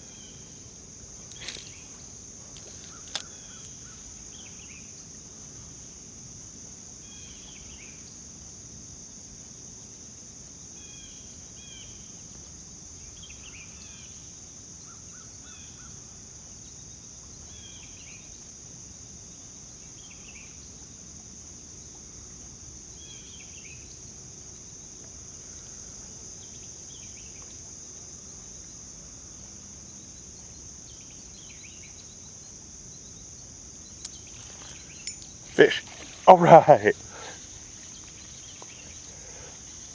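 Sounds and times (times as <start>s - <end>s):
crickets chirping: 0.0s - 39.9s
bird chirping: 33.9s - 39.9s.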